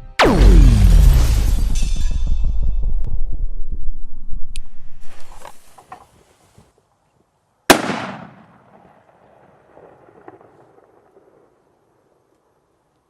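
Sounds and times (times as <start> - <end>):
sharp firecracker bang: 7.7 - 8.6.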